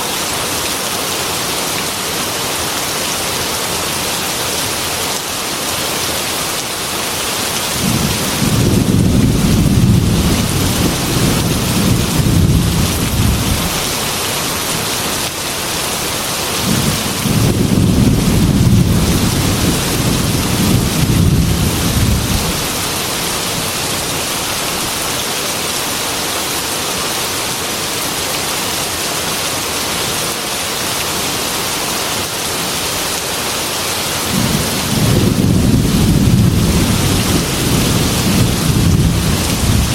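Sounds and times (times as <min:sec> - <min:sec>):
heavy rain falling: 0:00.0 - 0:39.9
deep rolls of thunder: 0:07.8 - 0:13.8, 0:16.6 - 0:22.7, 0:34.3 - 0:39.9.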